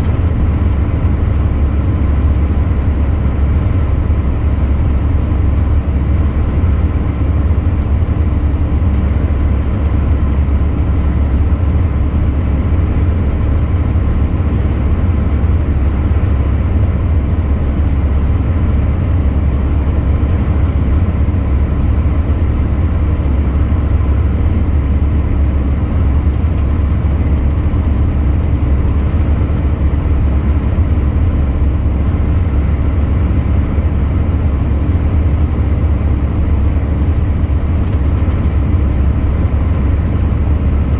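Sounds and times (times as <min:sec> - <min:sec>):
truck engine drone: 0:00.0 - 0:40.9.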